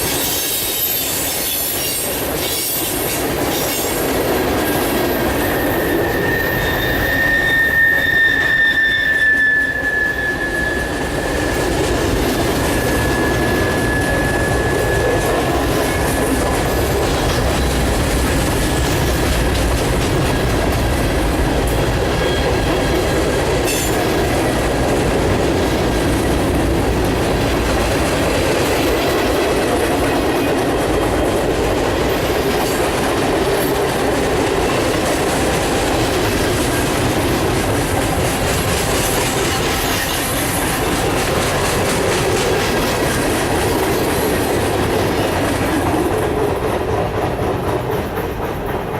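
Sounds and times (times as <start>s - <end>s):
freight train wheels rumbling: 0.0s - 48.9s
high wheel squeal: 5.1s - 16.8s.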